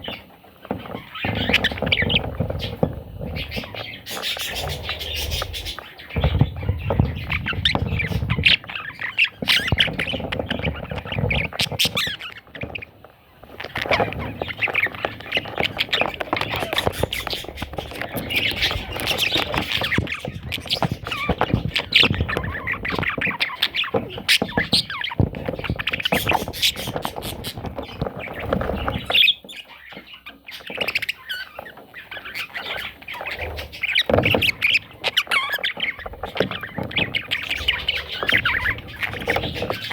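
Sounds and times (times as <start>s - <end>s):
budgerigar chattering and warbling: 3.4s - 12.9s, 13.7s - 28.0s.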